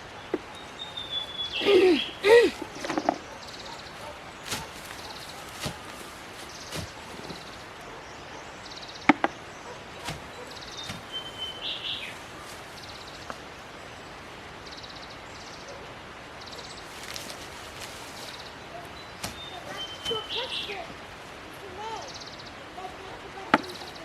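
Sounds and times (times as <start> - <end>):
bird trilling: 0.0 - 8.1, 9.4 - 12.9, 18.2 - 20.9.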